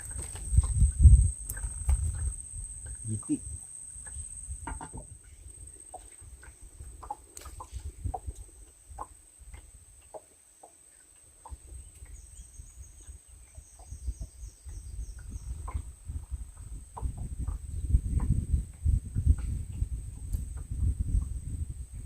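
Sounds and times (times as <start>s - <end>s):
high insect whine: 0.0s - 5.8s
short calls or knocks: 4.6s - 5.1s.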